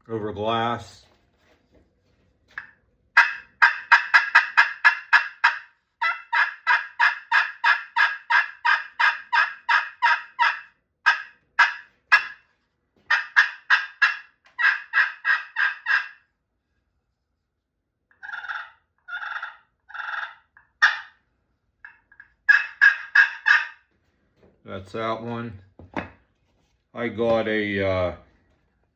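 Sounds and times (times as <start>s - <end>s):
turkey pot call yelps: 3.2s - 12.4s, 13.1s - 16.2s, 18.2s - 21.2s, 22.4s - 23.8s.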